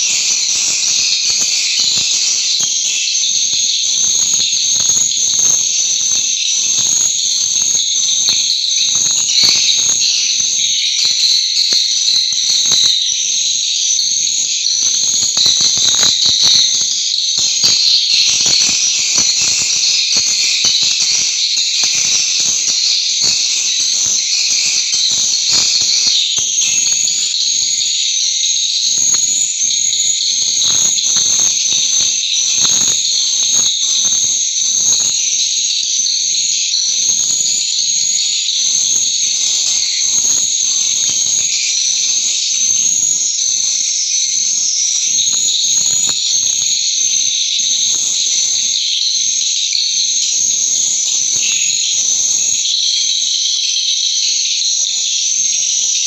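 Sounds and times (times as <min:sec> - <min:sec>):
swiftlets chirping: 0:17.4 - 0:35.0.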